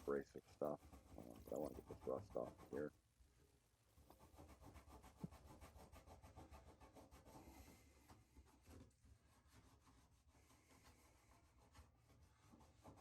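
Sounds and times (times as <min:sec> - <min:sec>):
scouring pad scrubbing metal: 0:00.1 - 0:02.9.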